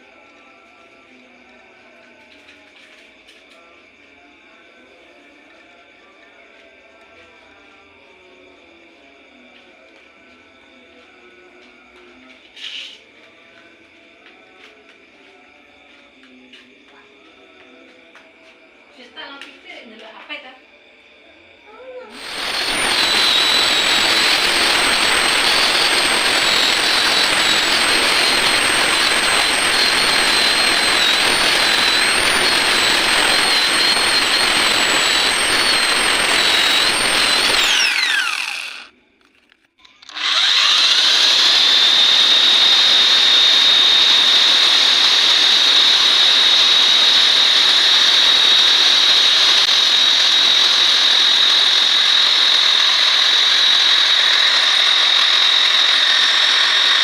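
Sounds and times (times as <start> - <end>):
electric hand grinder whining: 22.1 - 38.9, 40.0 - 57.0.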